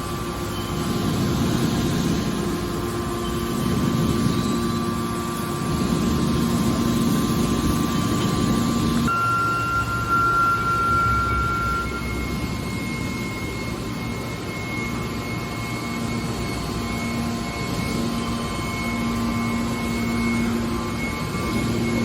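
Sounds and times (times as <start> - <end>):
steady machine whine: 0.0 - 22.0
low hum: 8.7 - 14.9.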